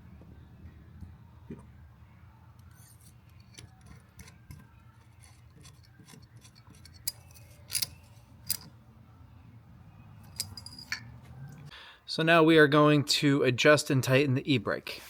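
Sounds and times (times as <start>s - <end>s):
low steady hum: 0.0s - 12.0s
metal tools clinking: 5.2s - 8.8s, 10.2s - 11.4s.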